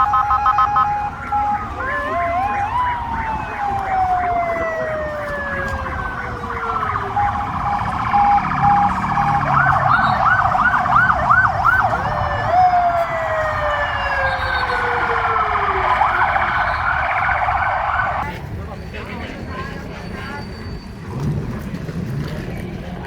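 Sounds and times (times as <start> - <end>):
pulsed siren tone: 0.0 - 18.2
siren falling wails: 0.0 - 18.2
siren fast yelp: 0.0 - 18.2.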